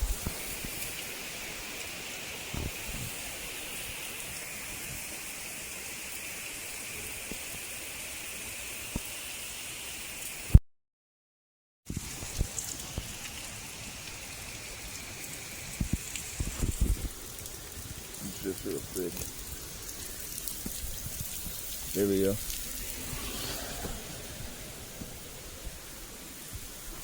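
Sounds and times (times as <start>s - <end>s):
steady rain falling: 0.0s - 10.5s, 11.9s - 27.0s
faint drips: 15.7s - 24.0s.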